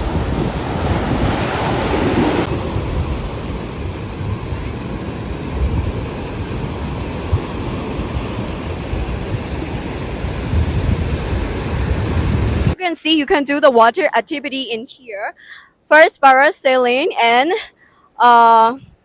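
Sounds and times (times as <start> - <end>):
surf washing on beach: 0.0 - 12.8
wind buffeting microphone: 0.0 - 12.8.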